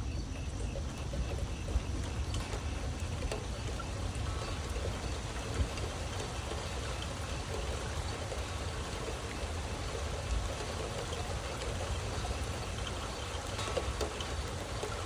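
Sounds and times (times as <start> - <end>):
heavy rain pouring: 0.8 - 15.0.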